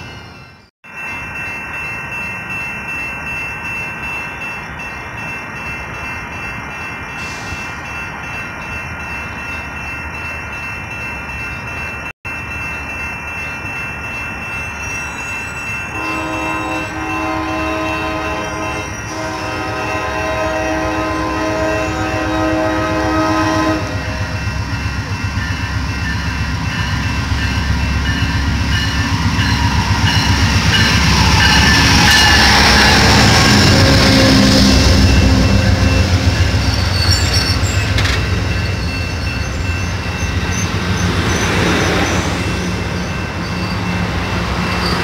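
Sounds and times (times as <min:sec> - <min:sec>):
train rumble and wheel clatter: 0:00.0 - 0:45.0
train horn blasts: 0:15.9 - 0:24.5, 0:31.2 - 0:36.6.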